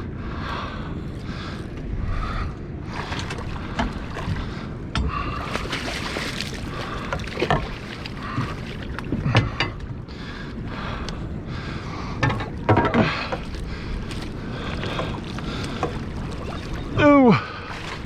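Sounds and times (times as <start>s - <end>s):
water lapping around boat: 0.0s - 18.0s
wind: 0.0s - 18.0s
knocks and clicks on hull: 3.0s - 10.0s, 12.1s - 17.0s.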